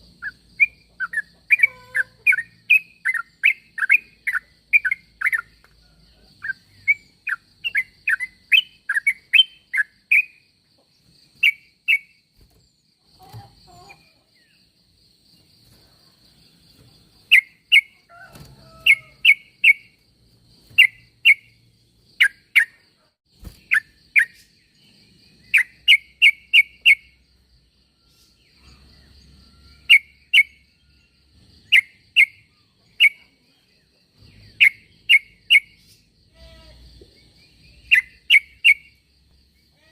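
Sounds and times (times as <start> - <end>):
bulbul chirping: 0.2 - 5.6, 17.3 - 18.0, 37.4 - 39.0.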